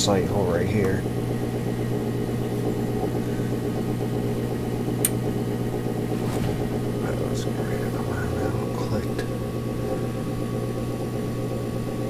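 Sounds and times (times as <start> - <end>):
furnace motor hum: 0.0 - 12.0
furnace pilot click: 5.0 - 5.2.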